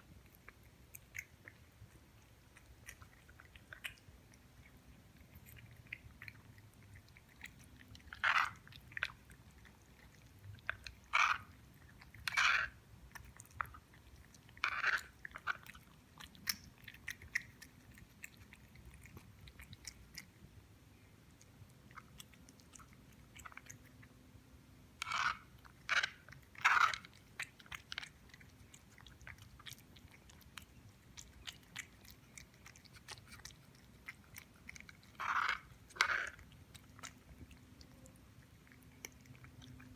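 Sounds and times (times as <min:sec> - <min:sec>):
crunching of dry cat biscuits: 0:25.0 - 0:38.0.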